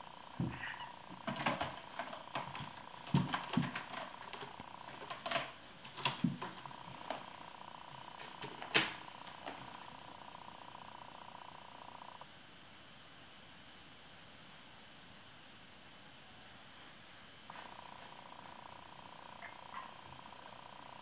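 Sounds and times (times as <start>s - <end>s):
kitten scrambling with light clicks: 0.5s - 9.9s.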